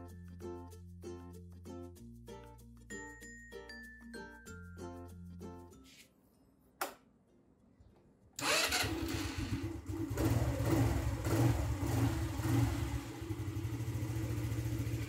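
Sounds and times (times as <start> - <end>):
scooter engine starting and idling: 8.4 - 15.0.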